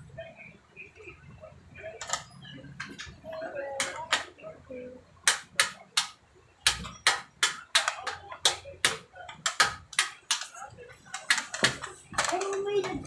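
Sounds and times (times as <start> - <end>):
foam-dart blasters clacking: 5.3 - 10.6.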